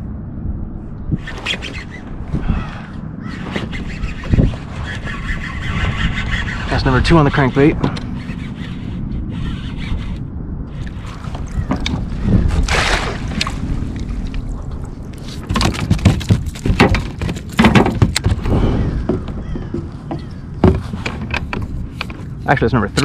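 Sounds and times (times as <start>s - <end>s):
water sloshing: 10.7s - 22.5s.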